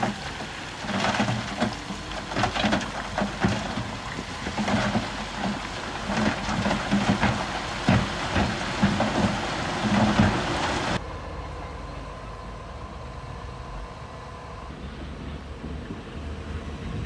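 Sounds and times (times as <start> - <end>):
construction machinery knocking: 0.0 - 11.0
low engine rumble: 0.0 - 17.0.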